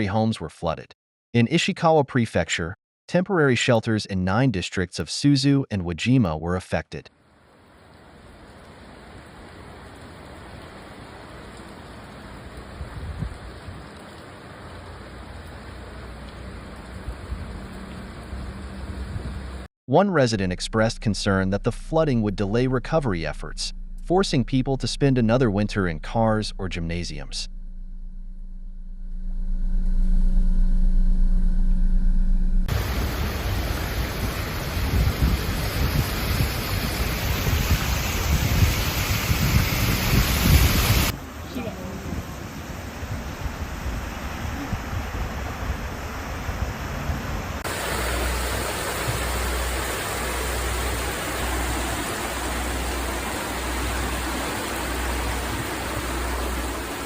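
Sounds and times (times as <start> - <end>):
rushing wind and water: 8.2 - 19.7, 32.7 - 57.0
low rumble with steady hum: 20.3 - 36.0, 41.0 - 57.0.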